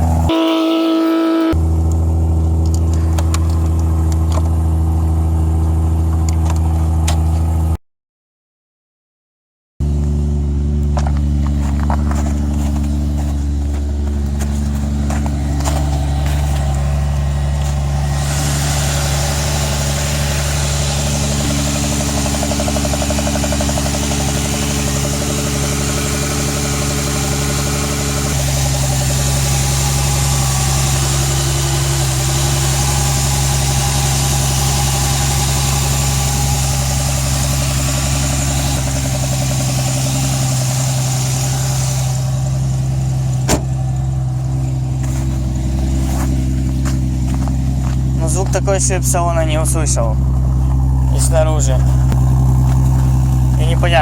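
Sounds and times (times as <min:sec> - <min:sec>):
car engine idling: 0:00.0 - 0:07.8, 0:09.8 - 0:54.0
hiss: 0:18.1 - 0:21.4.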